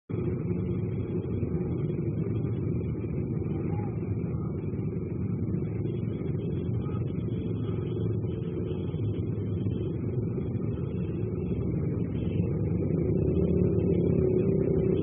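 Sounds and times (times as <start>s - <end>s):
car engine rumbling: 0.1s - 15.0s.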